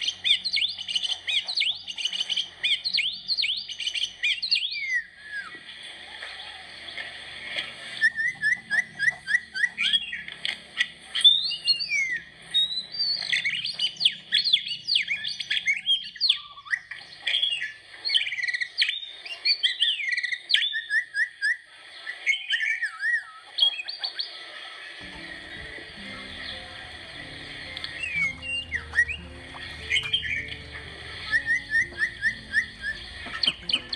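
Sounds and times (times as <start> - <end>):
small birds chirping: 25.0 - 33.9.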